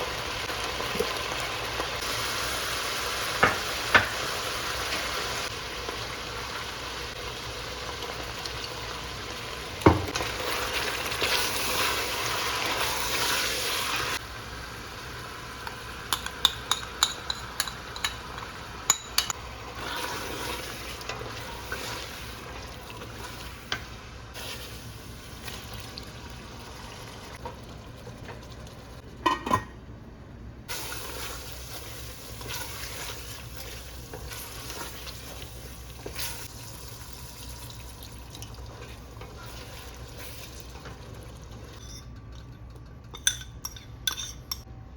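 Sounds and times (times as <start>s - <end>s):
food sizzling in a pan: 0.0s - 17.0s, 17.6s - 27.4s, 30.7s - 41.7s
utensil clinking against cookware: 16.1s - 19.4s, 29.2s - 29.8s, 41.5s - 44.7s.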